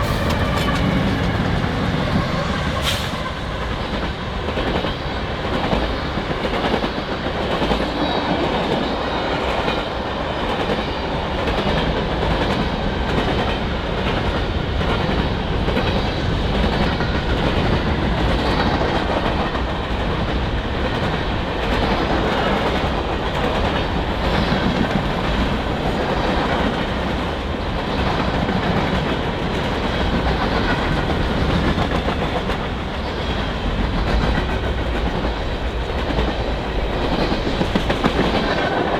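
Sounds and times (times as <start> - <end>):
freight train rumbling past: 0.0 - 38.9
wheels clicking over rail joints: 33.8 - 38.9.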